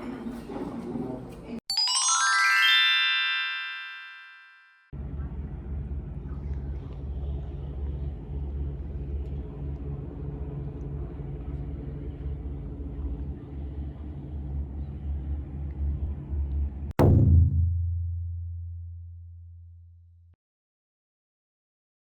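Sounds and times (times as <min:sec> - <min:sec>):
boat engine rumbling: 0:05.0 - 0:16.9.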